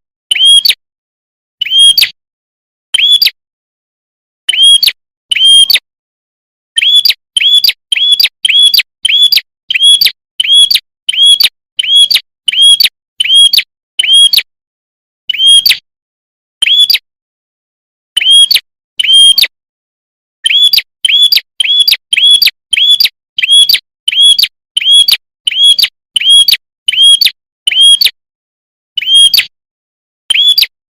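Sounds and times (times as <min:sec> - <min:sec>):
bird chirps arched whistle: 0:01.6 - 0:02.2, 0:03.0 - 0:03.4, 0:04.6 - 0:05.8, 0:06.8 - 0:14.4, 0:16.6 - 0:17.0, 0:18.2 - 0:19.5, 0:20.4 - 0:28.0, 0:29.0 - 0:29.5, 0:30.3 - 0:30.7.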